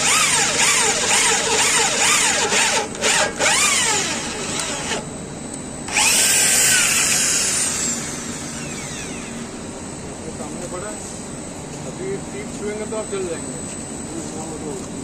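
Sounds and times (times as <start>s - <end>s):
electric drill boring into steel: 0.0s - 5.1s, 5.9s - 9.7s.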